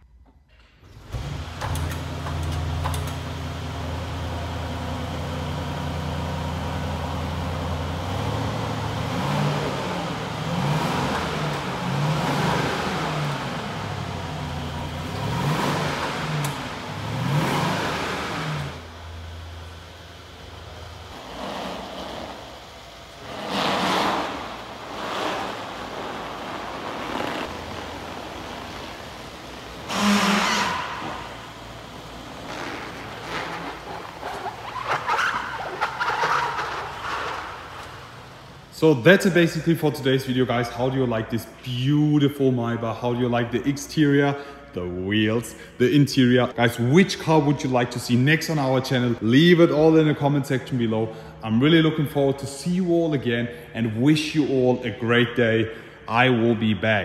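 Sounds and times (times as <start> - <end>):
car engine idling and revving: 0.8 - 39.0.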